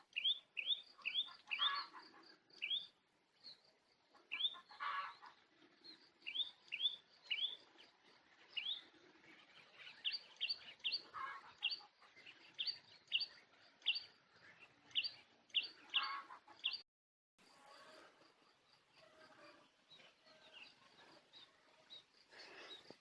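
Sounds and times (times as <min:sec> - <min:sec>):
small bird chirping: 0:00.0 - 0:03.6, 0:04.3 - 0:16.8.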